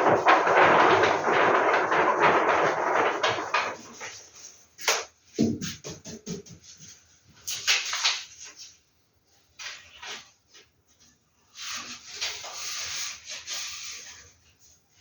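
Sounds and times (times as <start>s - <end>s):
paper rustling: 0.0s - 5.1s, 6.6s - 8.8s, 9.6s - 15.0s.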